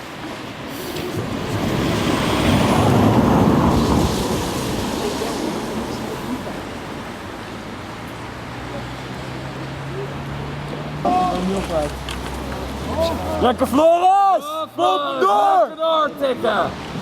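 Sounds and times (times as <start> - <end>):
vehicle passing by: 1.2 - 13.9.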